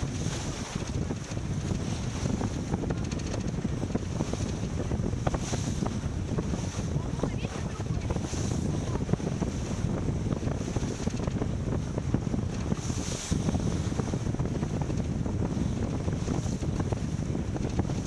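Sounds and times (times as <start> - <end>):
wind buffeting microphone: 0.0 - 18.0
water hissing along hull: 3.8 - 11.0.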